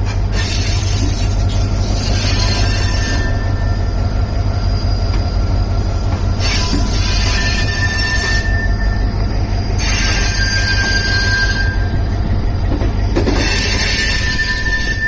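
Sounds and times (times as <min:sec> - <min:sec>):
high wheel squeal: 0:00.0 - 0:15.0
passenger train rumbling: 0:00.0 - 0:15.0.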